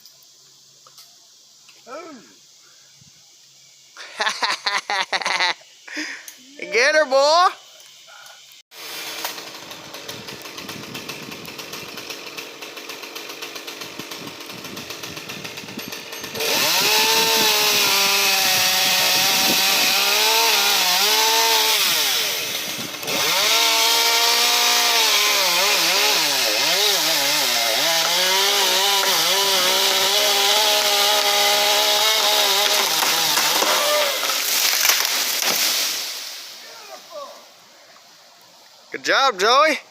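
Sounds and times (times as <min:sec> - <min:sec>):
chainsaw cutting wood: 0:08.7 - 0:36.7.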